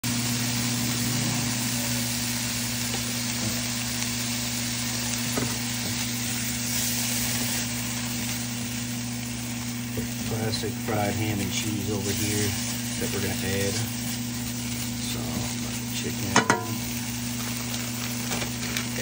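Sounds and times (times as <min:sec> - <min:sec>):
chicken sizzling in a pan: 0:00.0 - 0:19.0
constant low hum: 0:00.2 - 0:19.0.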